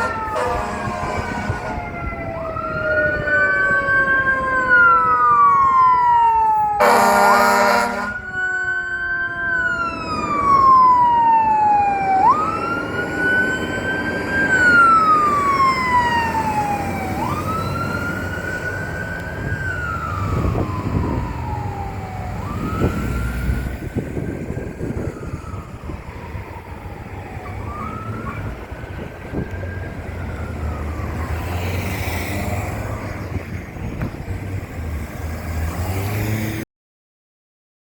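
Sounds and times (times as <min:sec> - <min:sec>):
air horn blast: 0:00.0 - 0:02.0, 0:06.8 - 0:08.2
mechanical siren wailing: 0:00.0 - 0:34.0.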